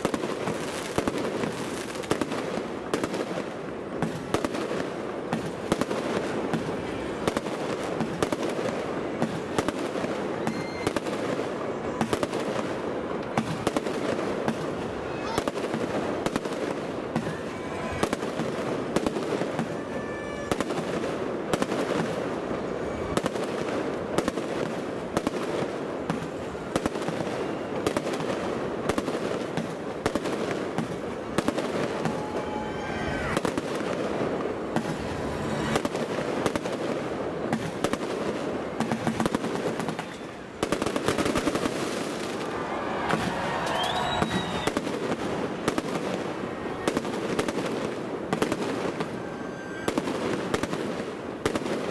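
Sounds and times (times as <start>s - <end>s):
fireworks bangs and crackle: 0.0s - 51.9s
fireworks rising whistles: 10.3s - 11.4s, 16.3s - 21.1s, 31.4s - 45.5s, 48.4s - 51.0s.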